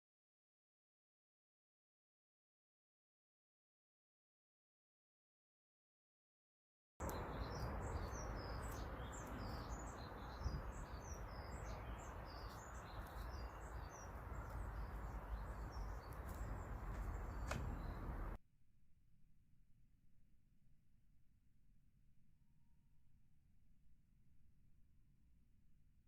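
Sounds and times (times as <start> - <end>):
outdoor background hum: 7.0 - 18.4
small birds chirping: 7.0 - 18.4.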